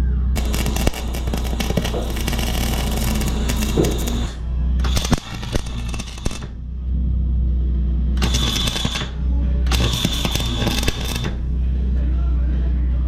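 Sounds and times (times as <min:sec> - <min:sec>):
background music: 0:00.0 - 0:13.0
welding arc crackling: 0:00.4 - 0:06.6, 0:08.2 - 0:11.5.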